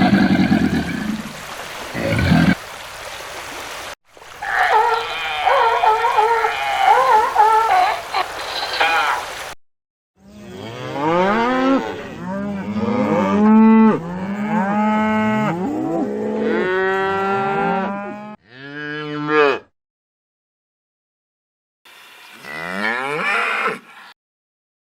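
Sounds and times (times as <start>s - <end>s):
wavering animal call: 4.4s - 9.3s
cattle mooing: 10.3s - 19.7s, 22.4s - 23.9s.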